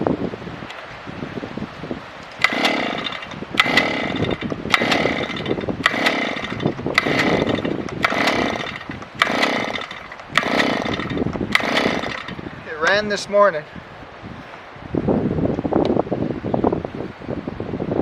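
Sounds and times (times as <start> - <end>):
small engine pull-start cranking: 2.4 - 12.4.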